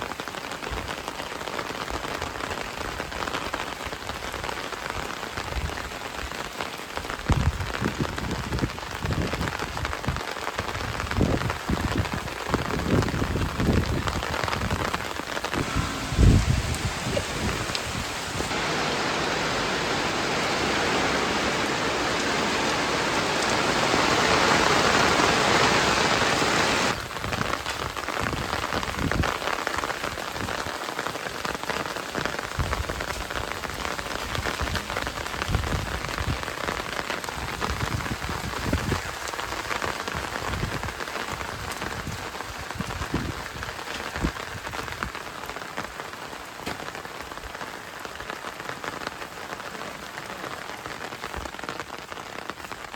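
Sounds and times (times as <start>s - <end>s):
raindrops tapping and knocking: 0.0s - 52.9s
heavy rain hissing: 12.8s - 44.6s, 47.8s - 52.9s.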